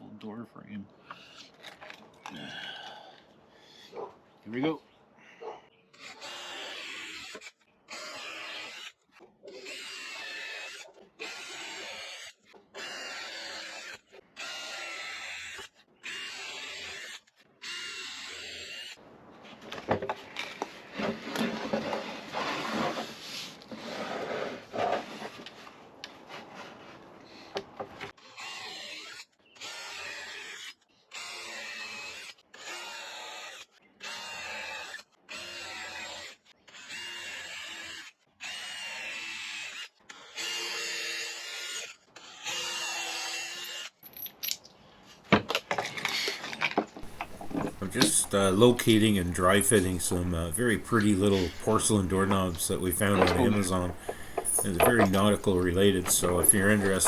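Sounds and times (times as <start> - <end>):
knocks and rattles: 47.0 - 48.2
power drill whining: 47.0 - 57.0.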